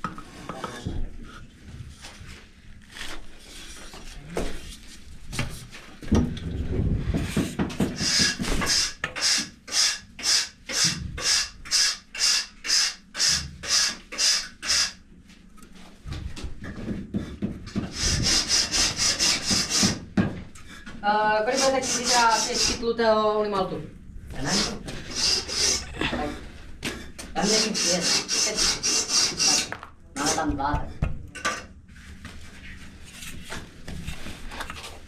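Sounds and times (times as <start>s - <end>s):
tool scraping a building block: 7.2s - 15.0s, 17.7s - 20.0s, 21.5s - 22.8s, 24.4s - 26.4s, 27.4s - 30.4s.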